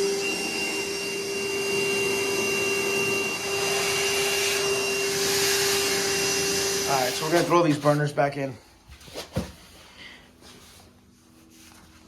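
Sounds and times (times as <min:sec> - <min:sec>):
vacuum cleaner motor running: 0:00.0 - 0:08.5.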